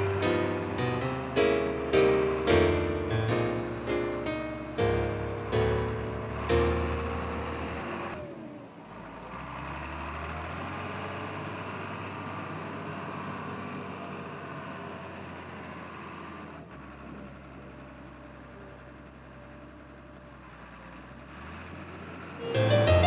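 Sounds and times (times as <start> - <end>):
engine running: 0.0 - 8.6.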